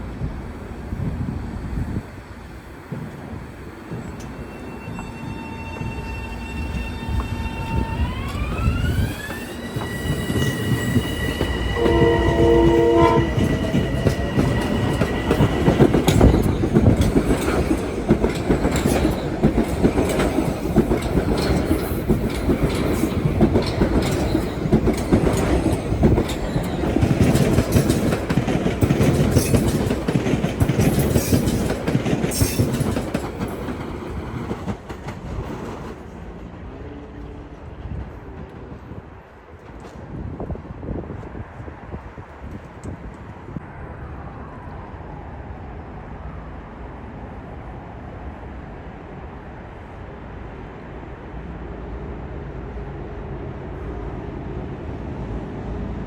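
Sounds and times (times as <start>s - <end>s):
train wheel and rail clatter: 0.0s - 43.7s
train whine: 0.0s - 56.0s
train horn blast: 11.4s - 15.5s.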